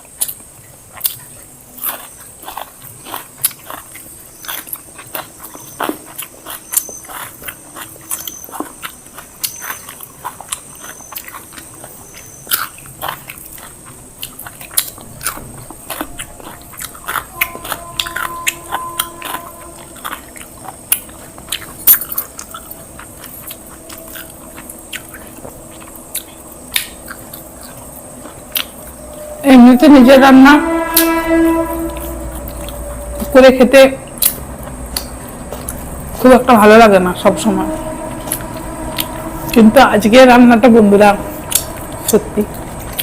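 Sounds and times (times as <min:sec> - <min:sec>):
people chewing food: 0:00.0 - 0:29.9, 0:30.6 - 0:33.4, 0:34.0 - 0:36.4, 0:41.3 - 0:43.0.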